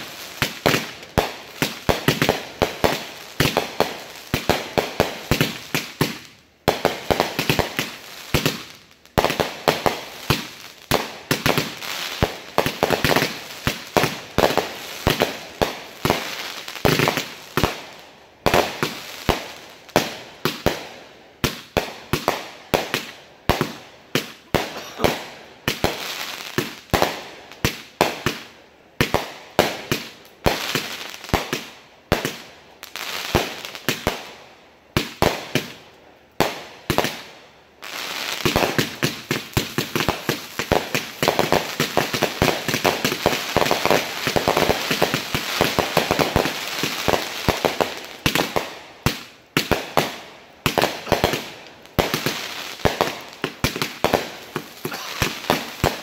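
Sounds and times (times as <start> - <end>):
rapid fireworks bangs: 9.2 - 32.4, 38.3 - 56.0.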